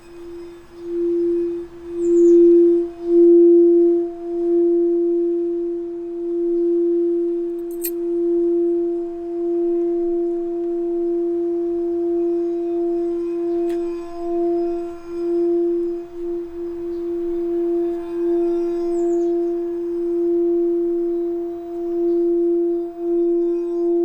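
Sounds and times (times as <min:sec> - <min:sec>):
singing bowl tone: 0:00.0 - 0:24.0.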